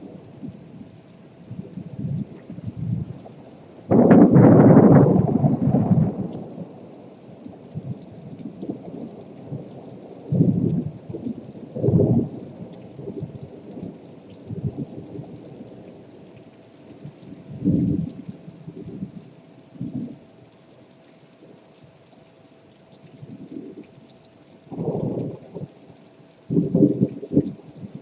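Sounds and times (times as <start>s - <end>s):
steady rain: 0.0s - 28.0s
thunder rumbling: 1.5s - 15.8s, 16.9s - 19.2s, 24.7s - 25.8s, 26.5s - 28.0s.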